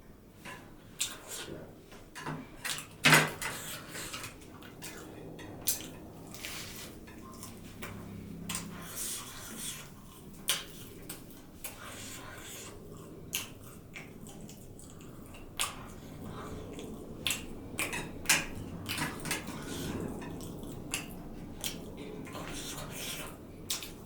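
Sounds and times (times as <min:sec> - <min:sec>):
wet chewing: 0:02.7 - 0:24.0
smacking mouth clicks: 0:09.5 - 0:24.0.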